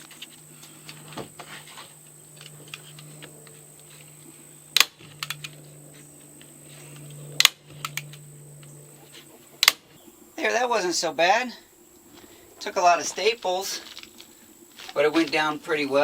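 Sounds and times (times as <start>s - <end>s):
steady low hum: 0.0s - 16.0s
small clicks: 2.3s - 5.6s, 6.4s - 8.8s.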